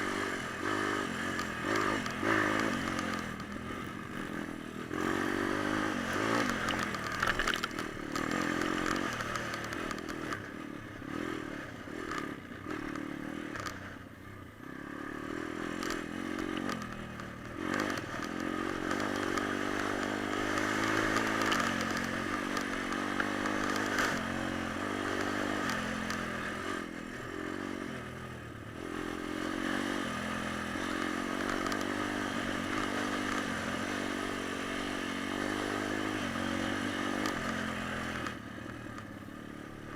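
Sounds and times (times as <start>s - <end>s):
pit bike engine revving: 0.0s - 13.8s, 14.6s - 28.0s.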